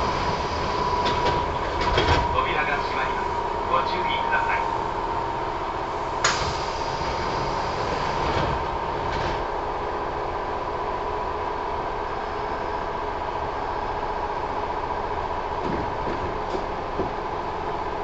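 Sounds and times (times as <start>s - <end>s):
train equipment hum: 0.0s - 18.0s.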